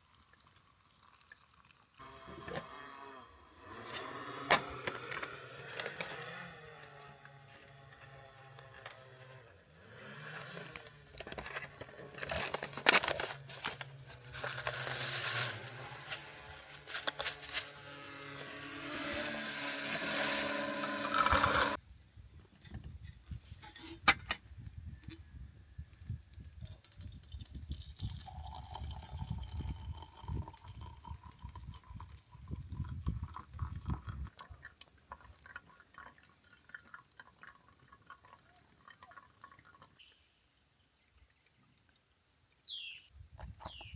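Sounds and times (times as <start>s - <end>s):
liquid pouring into container: 0.0s - 2.0s, 20.4s - 21.8s, 27.0s - 40.0s.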